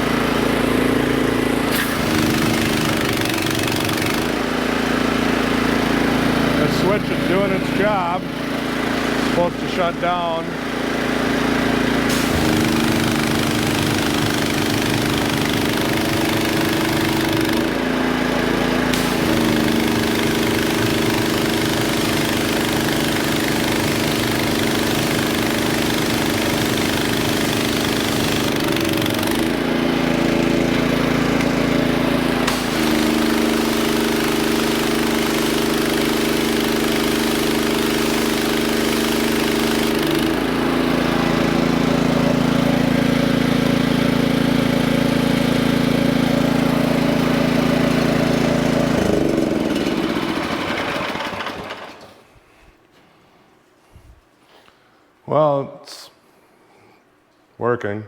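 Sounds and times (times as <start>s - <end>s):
pressure washer engine running: 0.0s - 52.3s
hissing spray: 12.1s - 15.2s.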